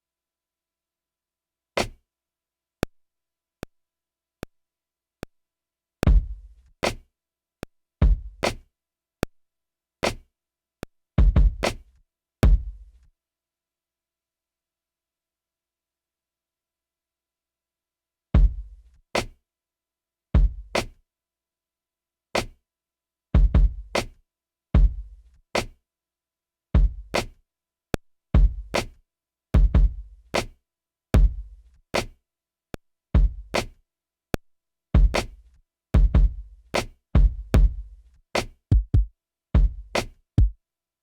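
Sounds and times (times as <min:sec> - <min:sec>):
deep kick drum thumps: 0:06.0 - 0:06.4, 0:08.0 - 0:08.4, 0:11.2 - 0:11.6, 0:12.4 - 0:12.7, 0:23.4 - 0:23.9, 0:29.6 - 0:30.0, 0:35.0 - 0:35.2, 0:36.0 - 0:36.4, 0:37.2 - 0:37.8, 0:38.7 - 0:40.6
sharp snappy drum hits: 0:38.7 - 0:39.7.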